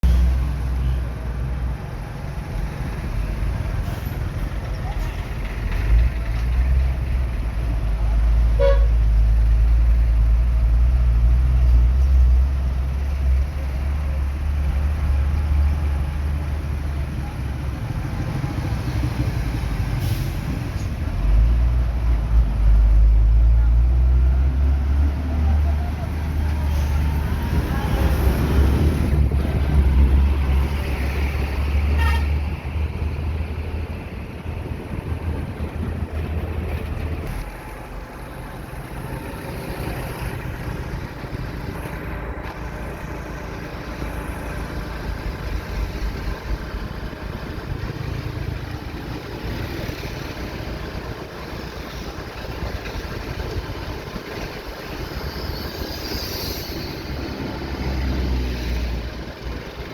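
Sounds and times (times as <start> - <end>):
vehicle engines idling: 0.0 - 55.9, 56.6 - 59.9
road traffic: 0.0 - 59.9
short car horn toot: 8.6 - 8.9
vehicle horn toot: 8.6 - 9.0, 31.9 - 32.4.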